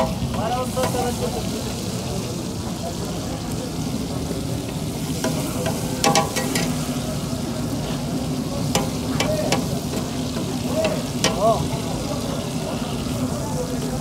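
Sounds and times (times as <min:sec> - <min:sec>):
food sizzling on iron griddle: 0:00.0 - 0:14.0
metal spatula scraping and knocking: 0:05.2 - 0:06.8.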